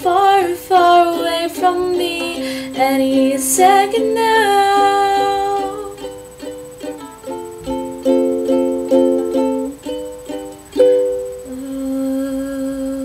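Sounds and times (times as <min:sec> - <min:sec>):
ukulele plucked and strummed chords: 0:00.0 - 0:12.1.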